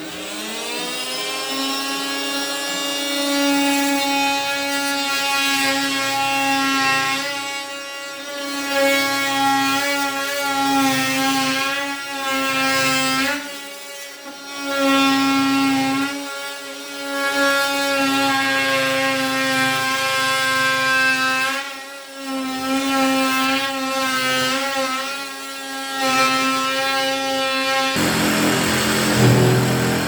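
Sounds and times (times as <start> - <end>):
power tool whining: 27.6 - 30.0
low hum: 28.0 - 30.0
rough noisy sound: 28.0 - 30.0.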